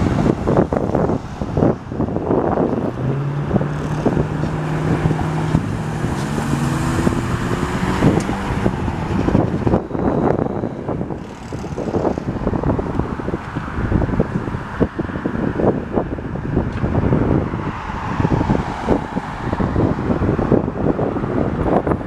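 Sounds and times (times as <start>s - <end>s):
fire truck engine revving: 0.0s - 15.7s
wind buffeting microphone: 0.0s - 22.0s.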